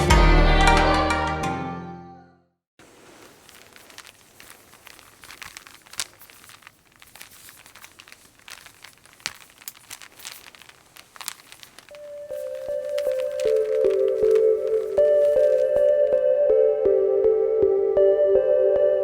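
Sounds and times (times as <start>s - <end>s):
soft crackling with clicks: 2.8s - 16.3s.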